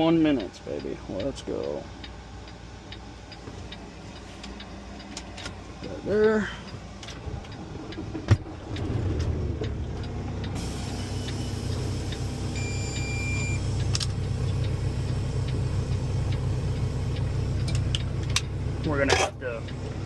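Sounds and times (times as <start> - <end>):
truck engine droning: 0.0 - 20.0
short high beep: 12.5 - 13.7.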